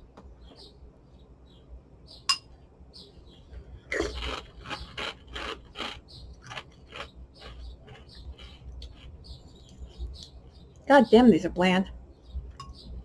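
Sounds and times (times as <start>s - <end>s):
spoon scraping through cereal: 4.0s - 9.4s.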